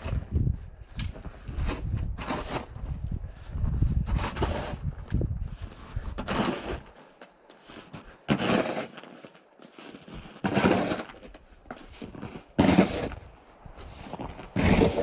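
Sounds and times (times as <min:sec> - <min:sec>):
snow shovel scraping snow: 0:01.5 - 0:02.7, 0:04.1 - 0:04.8, 0:05.6 - 0:06.9, 0:07.6 - 0:13.2, 0:13.8 - 0:15.0.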